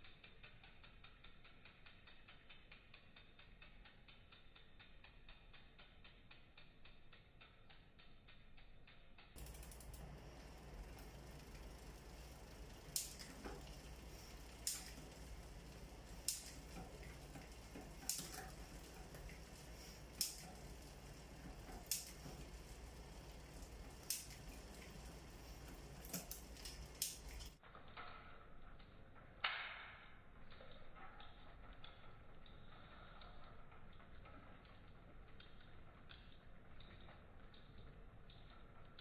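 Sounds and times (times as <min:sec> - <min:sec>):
bike chain shifting clicks: 0:00.3 - 0:28.9.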